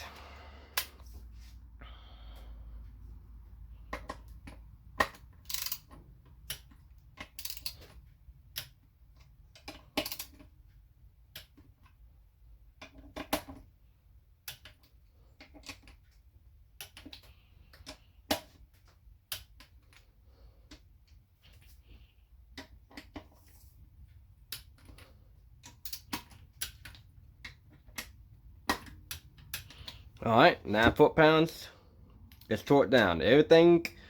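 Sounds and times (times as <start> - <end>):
torque wrench clicking: 5.4 - 5.9.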